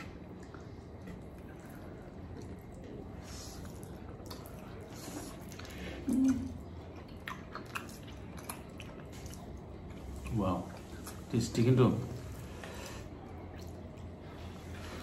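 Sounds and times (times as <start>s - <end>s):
person chewing noodles: 0.0s - 15.0s.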